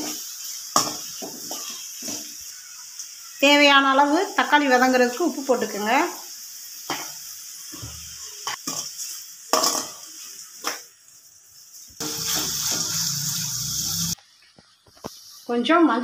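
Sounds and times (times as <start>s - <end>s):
vegetables sizzling in oil: 0.0s - 16.0s
ladle scraping and knocking pan: 12.0s - 13.0s.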